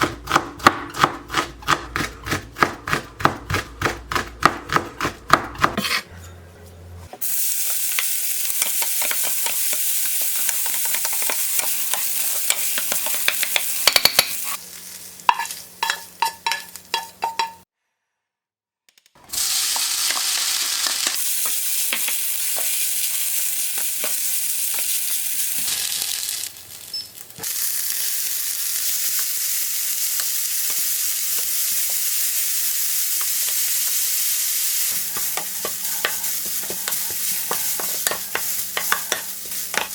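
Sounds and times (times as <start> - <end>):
utensil scraping pan: 5.6 - 6.5, 35.0 - 39.9
food sizzling in frying pan: 7.2 - 17.6, 19.4 - 39.9.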